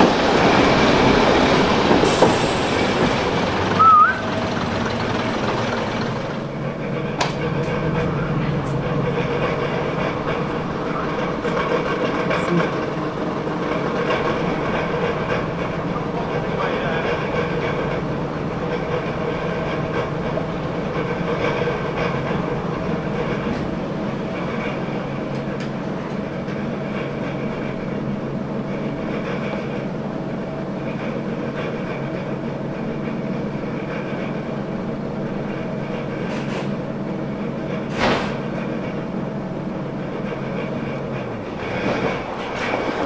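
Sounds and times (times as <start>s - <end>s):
train clanks: 0.0s - 43.0s
train mechanical drone: 0.0s - 43.0s.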